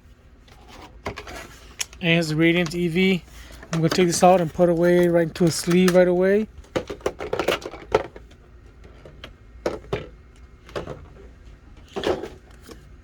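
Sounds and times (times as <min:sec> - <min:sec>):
packaging clicks and rustles: 0:03.5 - 0:11.2.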